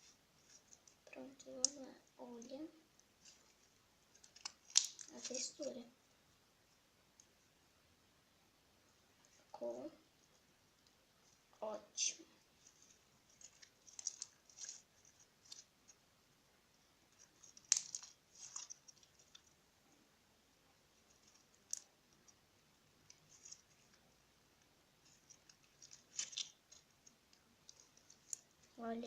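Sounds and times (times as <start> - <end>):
slime sticky clicks and crackles: 0.5 - 1.9, 4.1 - 5.5, 13.4 - 15.7, 17.2 - 19.5, 25.1 - 28.6
slime snapping: 4.2 - 5.1, 17.5 - 19.0.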